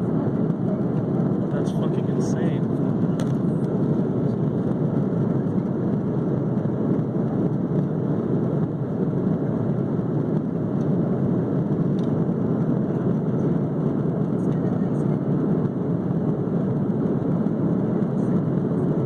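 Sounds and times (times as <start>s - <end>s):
airliner cabin noise: 0.0s - 19.0s.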